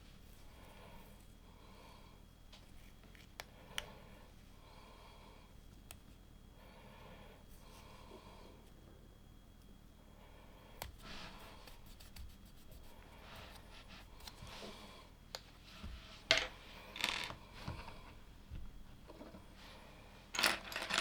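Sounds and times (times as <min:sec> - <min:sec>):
light rustling and scraping: 0:11.0 - 0:21.0.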